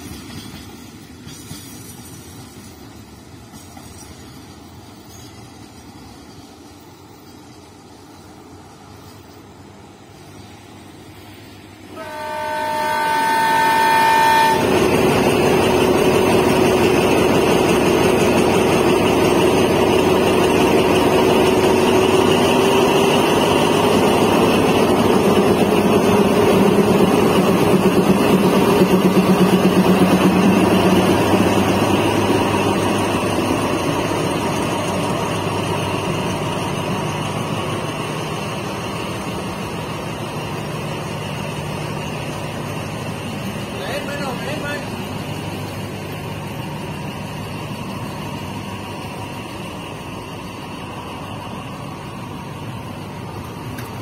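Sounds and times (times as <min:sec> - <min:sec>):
diesel locomotive engine: 0:00.0 - 0:54.0
wheels rumbling on rails: 0:00.0 - 0:54.0
train horn blast: 0:11.9 - 0:14.8.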